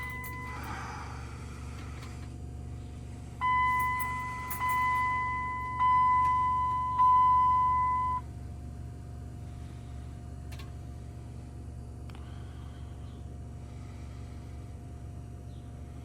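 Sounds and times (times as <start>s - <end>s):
high-pitched electronic warning tone: 0.0s - 0.6s, 3.4s - 8.2s
low steady hum: 0.0s - 16.0s.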